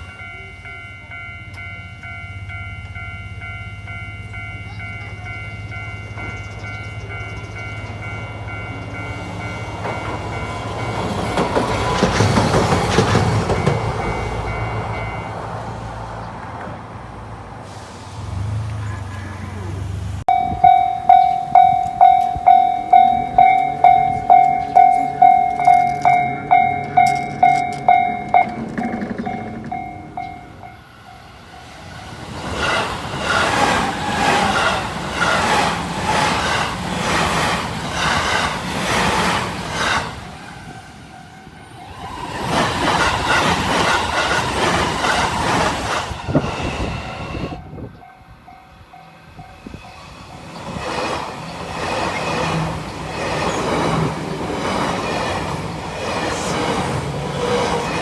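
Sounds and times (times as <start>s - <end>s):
level crossing warning bell: 0.0s - 16.2s, 20.2s - 32.6s, 33.4s - 46.2s, 47.5s - 50.6s
train wheels clattering over joints: 4.4s - 15.2s, 20.3s - 30.8s, 32.0s - 48.0s, 49.4s - 58.0s.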